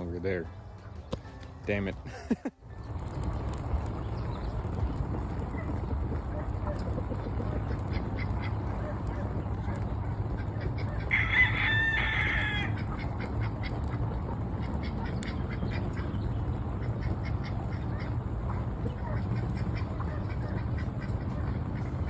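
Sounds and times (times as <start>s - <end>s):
ducks quacking: 4.9s - 22.0s
rooster crowing: 11.0s - 12.8s.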